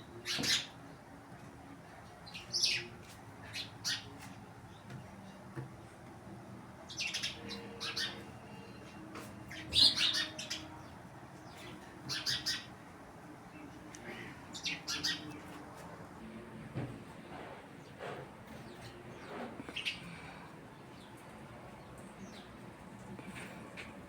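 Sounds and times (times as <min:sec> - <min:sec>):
small birds chirping: 0:00.1 - 0:00.9, 0:02.2 - 0:05.4, 0:06.8 - 0:12.9, 0:13.5 - 0:15.8, 0:17.8 - 0:23.8.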